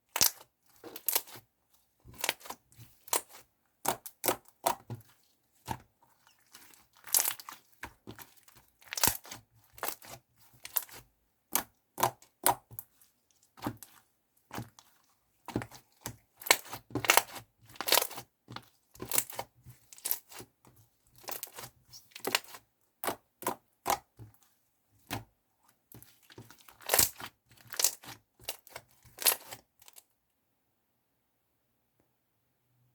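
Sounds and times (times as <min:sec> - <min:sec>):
slime popping and crackling: 0:19.0 - 0:19.4.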